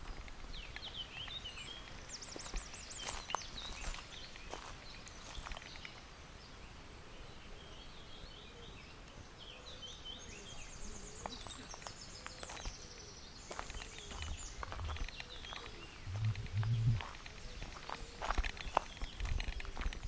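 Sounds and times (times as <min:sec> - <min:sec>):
songbirds singing: 0:00.0 - 0:20.0.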